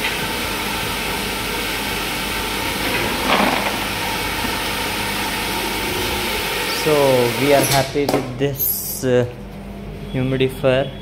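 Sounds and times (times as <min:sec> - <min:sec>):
low machinery hum: 0:00.0 - 0:11.0
machinery hiss: 0:03.7 - 0:09.1.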